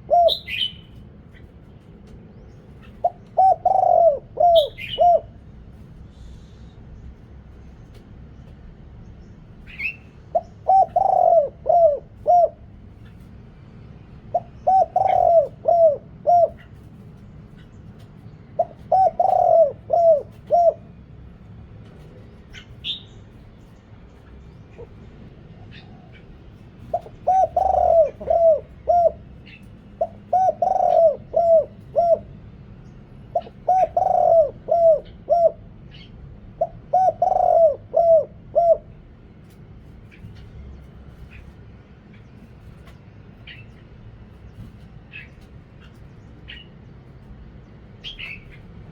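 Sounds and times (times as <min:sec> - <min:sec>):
dove cooing: 0:00.0 - 0:06.4, 0:09.6 - 0:13.4, 0:14.1 - 0:23.5, 0:24.2 - 0:40.3, 0:48.0 - 0:48.9.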